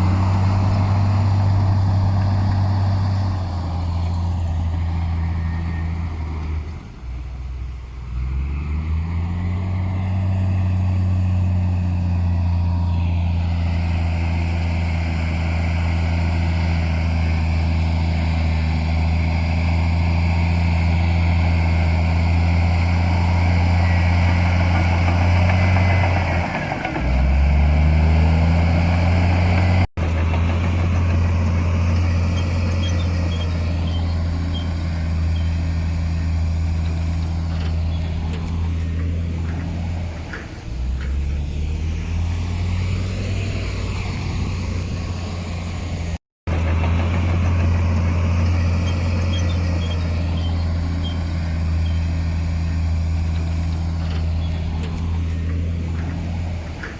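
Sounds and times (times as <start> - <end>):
heavy diesel engine running: 0.0 - 56.9.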